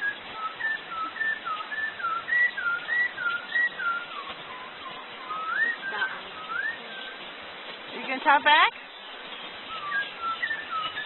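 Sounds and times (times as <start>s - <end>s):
bird whistling clear notes: 0.0s - 7.2s, 9.7s - 11.0s.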